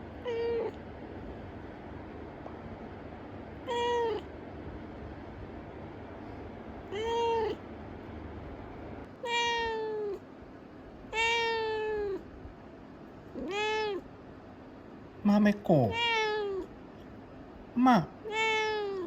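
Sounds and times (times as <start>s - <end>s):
cat meowing: 0.2s - 0.8s, 3.6s - 4.3s, 6.9s - 7.6s, 9.2s - 10.2s, 11.1s - 12.3s, 13.3s - 14.1s, 15.8s - 16.7s, 18.2s - 19.0s.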